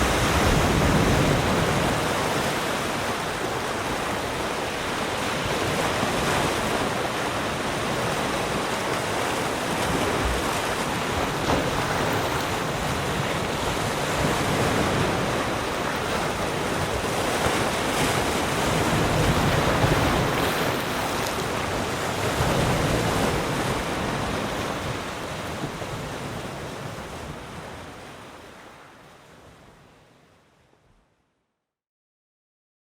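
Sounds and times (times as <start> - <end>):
ocean waves washing on shore: 0.0 - 30.9.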